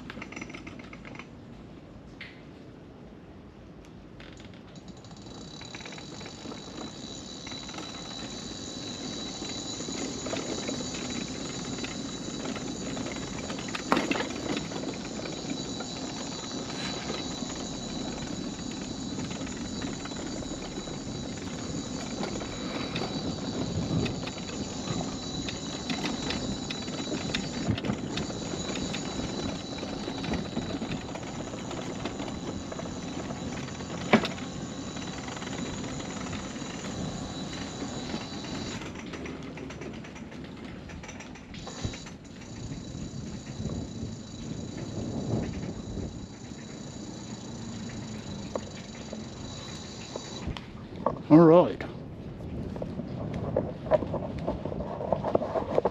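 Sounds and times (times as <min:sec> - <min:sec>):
wheels rattling on wooden boards: 0:00.0 - 0:01.3, 0:04.2 - 0:52.0
scooter motor whine: 0:05.1 - 0:39.7, 0:41.6 - 0:50.7.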